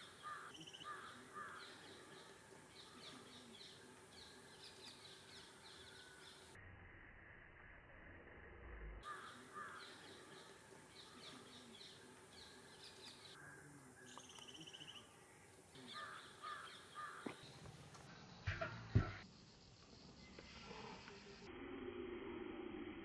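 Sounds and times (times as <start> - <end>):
faint bird calls: 0.0 - 6.6, 9.0 - 17.7.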